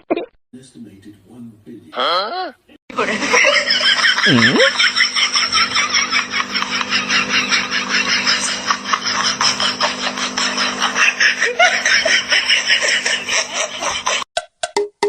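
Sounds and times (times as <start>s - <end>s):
person laughing hard: 3.0s - 14.2s.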